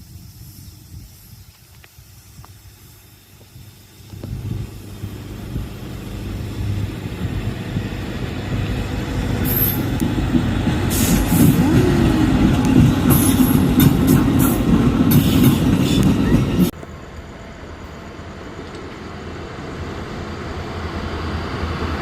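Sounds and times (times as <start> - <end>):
train rumble passing: 2.0 - 22.0
wheels squealing on rails: 2.2 - 16.8.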